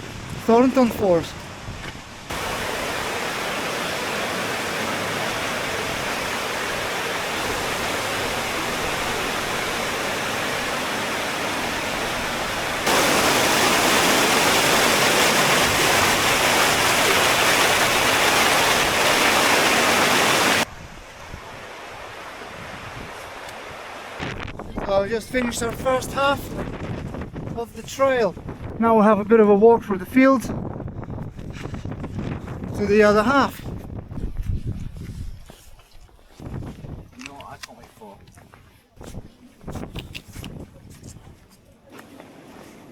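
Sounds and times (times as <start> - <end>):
waterfall rushing: 2.3 - 20.7.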